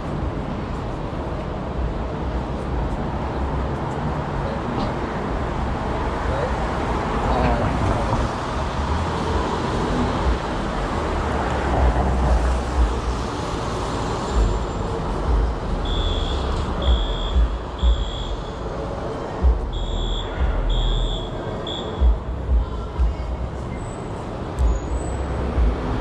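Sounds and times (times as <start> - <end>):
city street traffic rumble: 0.0 - 26.0
high electronic beeps: 15.8 - 18.6, 19.5 - 22.2.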